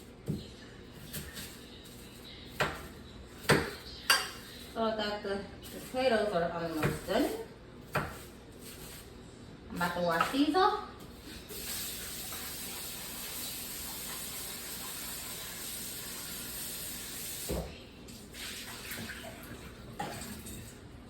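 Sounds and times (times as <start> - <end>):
faucet water running: 11.4 - 21.0.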